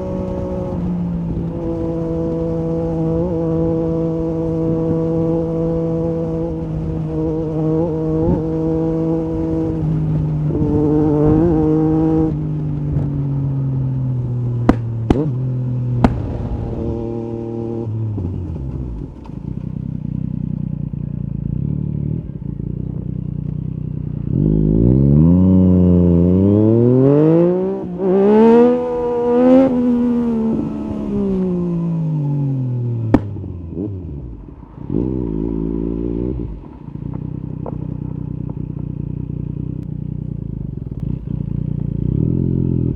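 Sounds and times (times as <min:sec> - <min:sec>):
motorcycle engine revving: 0:00.0 - 0:42.9
exhaust cracks: 0:14.6 - 0:21.1, 0:36.4 - 0:41.6.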